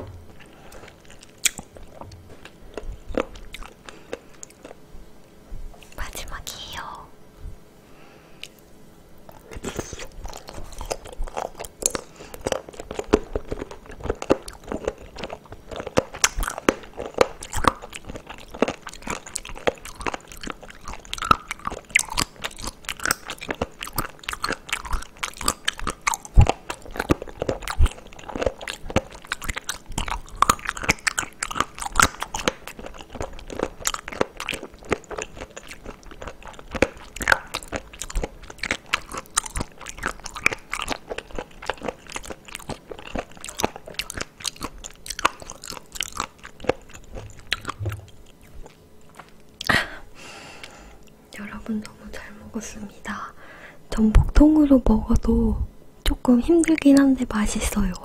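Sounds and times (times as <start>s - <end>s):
wet chewing clicks: 0.0s - 4.8s, 9.3s - 49.7s.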